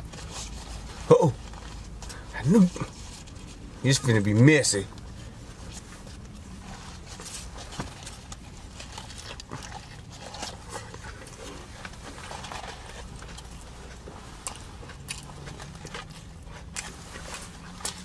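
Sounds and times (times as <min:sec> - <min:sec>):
wet chewing and lip-smacking: 0:07.9 - 0:18.0.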